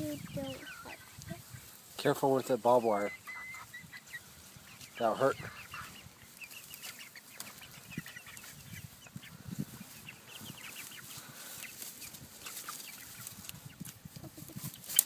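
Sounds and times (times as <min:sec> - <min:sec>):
chickens clucking: 0:00.0 - 0:15.0
rustling and scuffing: 0:06.2 - 0:15.0.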